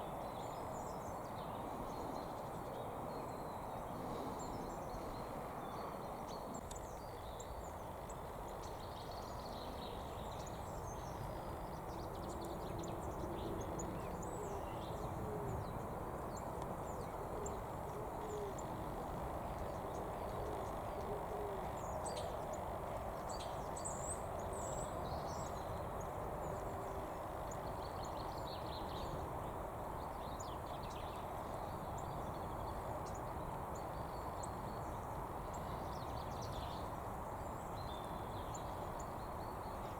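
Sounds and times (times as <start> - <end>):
pigeon cooing: 20.8 - 21.8.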